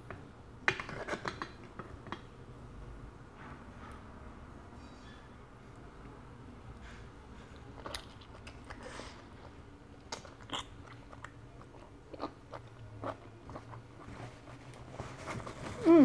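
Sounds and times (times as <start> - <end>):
person chewing: 7.5 - 14.6.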